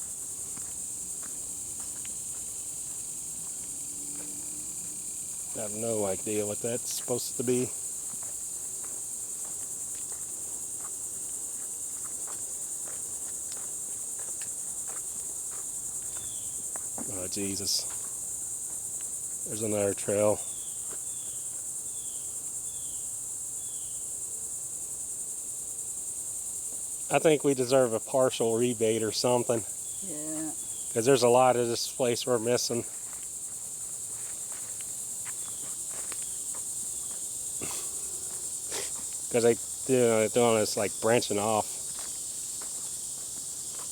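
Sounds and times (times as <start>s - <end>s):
footsteps on trail: 0.0s - 5.5s, 7.8s - 17.2s, 32.7s - 43.9s
insects chorus: 0.0s - 43.9s.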